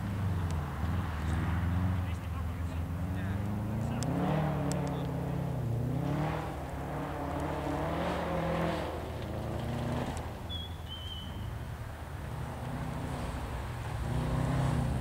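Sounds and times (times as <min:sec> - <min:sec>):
car engine revving past: 0:00.0 - 0:10.5, 0:12.2 - 0:15.0
thin high whistle: 0:10.5 - 0:11.5.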